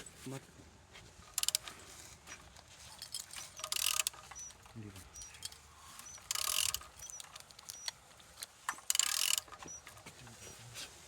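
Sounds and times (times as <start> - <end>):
engine crankshaft clicking and rasping: 1.2 - 10.2
faint short squeaks: 3.1 - 8.0, 9.4 - 10.7.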